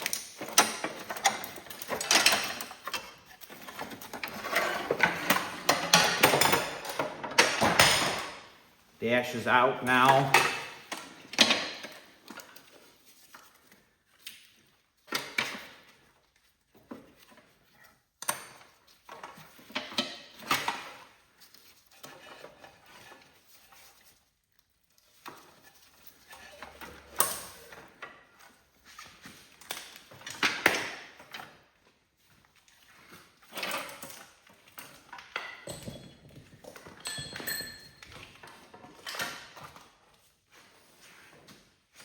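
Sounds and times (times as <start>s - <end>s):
metal tools clanking and knocking: 0.0s - 8.4s, 9.9s - 12.0s, 33.5s - 39.8s.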